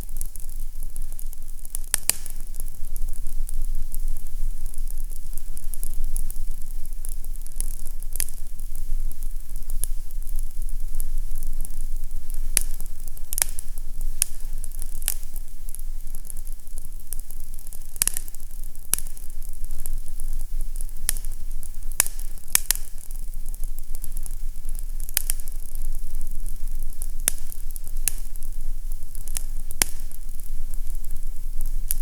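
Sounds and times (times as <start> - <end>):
fireplace crackling: 0.0 - 32.0.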